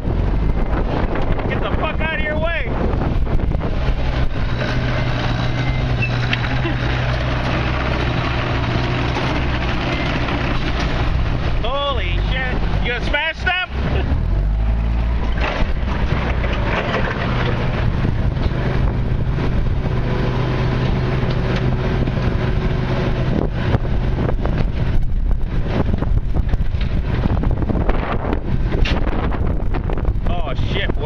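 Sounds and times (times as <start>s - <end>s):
backhoe diesel engine: 0.0s - 31.0s
wind buffeting microphone: 0.0s - 31.0s
clanks and knocks of scrap: 15.2s - 17.8s.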